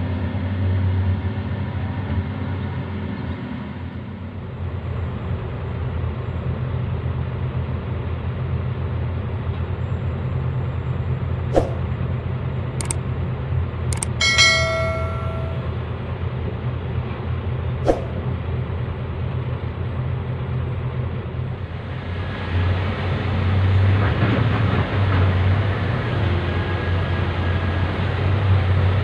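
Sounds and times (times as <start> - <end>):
sharp clicks: 14.0 - 15.5.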